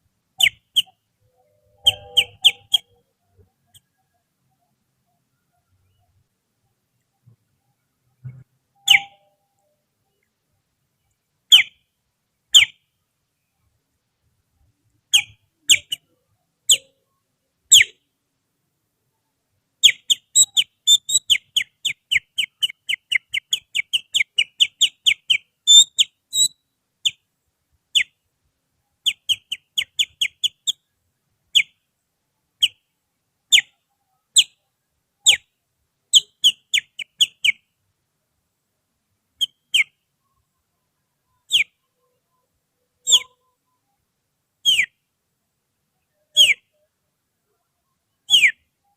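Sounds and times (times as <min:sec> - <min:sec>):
finger whistling bird chirps: 0:01.8 - 0:02.9, 0:08.3 - 0:09.4, 0:22.4 - 0:26.6, 0:43.0 - 0:43.4, 0:44.7 - 0:44.9, 0:48.3 - 0:48.6.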